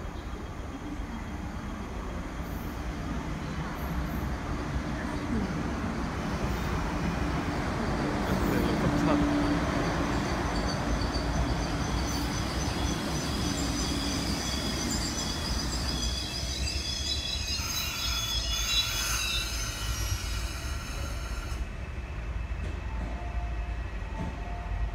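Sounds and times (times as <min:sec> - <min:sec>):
train braking rumble: 0:00.0 - 0:24.9
high-pitched brake squeals: 0:08.3 - 0:22.0.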